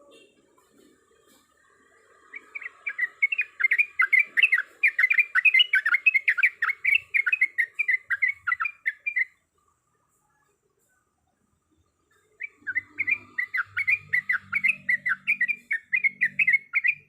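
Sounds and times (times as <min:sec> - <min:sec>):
bird singing chattering notes: 0:01.2 - 0:09.4, 0:12.0 - 0:17.0.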